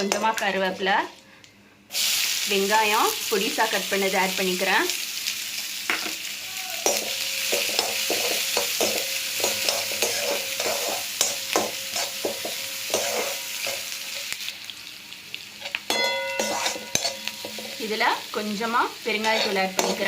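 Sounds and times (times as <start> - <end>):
onion sizzling in hot oil: 1.9 - 20.0
spatula scraping a pan: 6.8 - 14.0, 15.6 - 17.9, 19.1 - 20.0.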